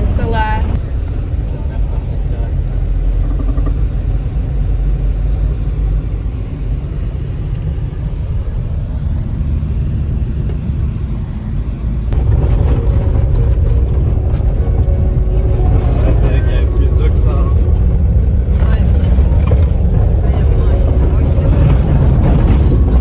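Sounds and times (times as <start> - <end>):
truck engine and tyre rumble: 0.0 - 23.0.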